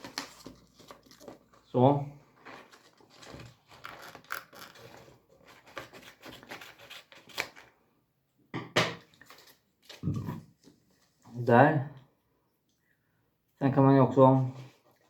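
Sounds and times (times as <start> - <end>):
paper rustling: 0.0 - 7.8, 9.1 - 11.2
scissors snipping paper: 3.7 - 7.7.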